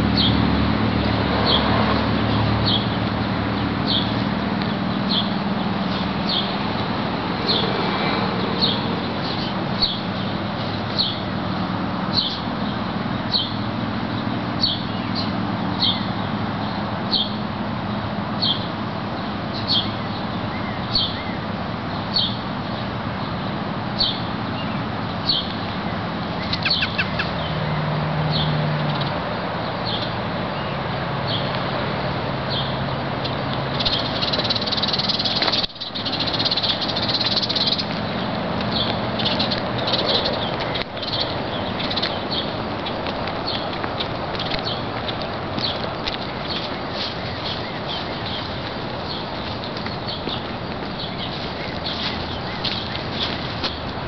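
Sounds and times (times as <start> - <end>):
outdoor background noise: 0.0 - 54.0
bird chirping: 3.6 - 11.4, 12.1 - 17.4, 26.3 - 29.1, 32.5 - 53.8.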